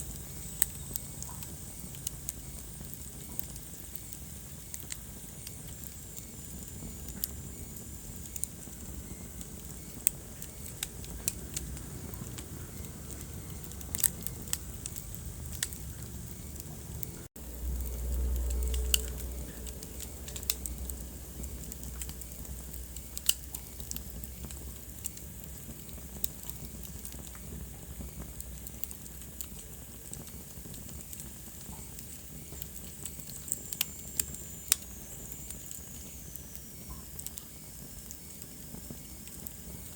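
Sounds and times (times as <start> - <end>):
wood fire crackling: 0.0 - 39.9
low rumble: 10.9 - 25.0.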